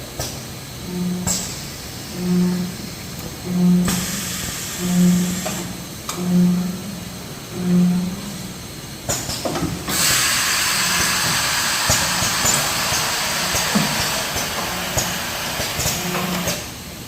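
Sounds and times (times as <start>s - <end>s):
packaging machine hum: 0.8s - 16.7s
air hissing: 0.9s - 6.5s, 9.9s - 16.6s.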